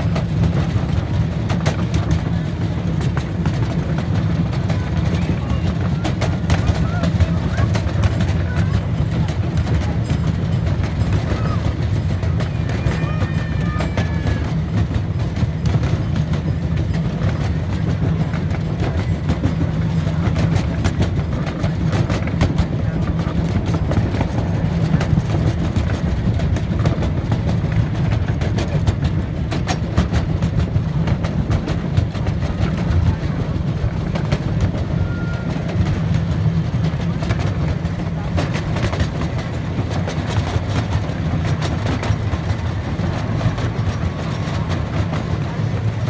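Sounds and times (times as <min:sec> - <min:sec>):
miniature train rumbling: 0:00.0 - 0:46.0
wheels clicking and clacking: 0:00.0 - 0:46.0.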